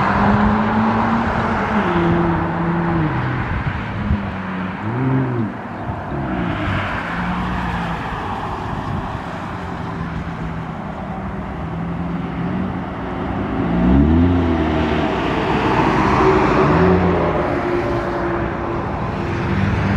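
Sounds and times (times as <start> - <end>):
car exhaust revving: 11.5 - 19.9.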